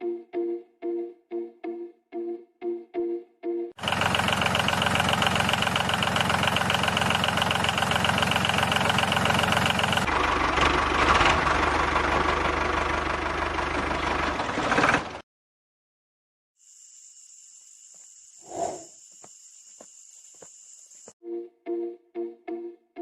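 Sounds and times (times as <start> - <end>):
toy diesel engine knocking: 3.8 - 15.2.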